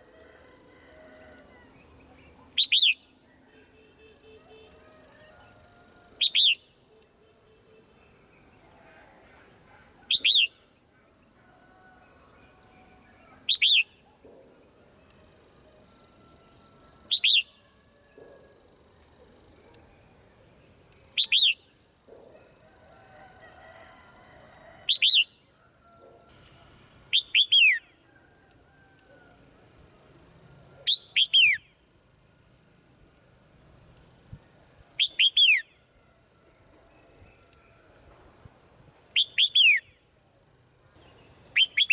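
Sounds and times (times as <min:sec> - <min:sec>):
steady high hiss: 0:26.2 - 0:41.9.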